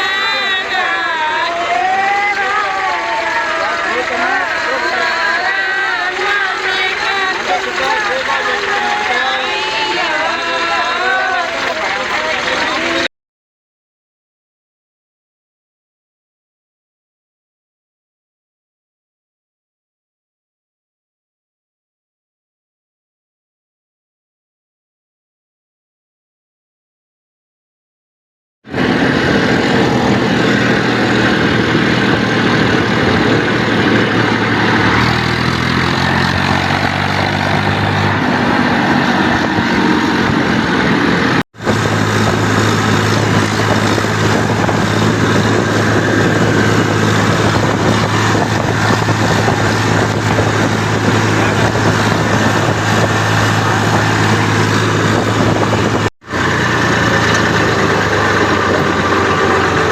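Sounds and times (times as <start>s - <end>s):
tractor diesel engine running: 0.0s - 13.1s, 28.7s - 59.9s.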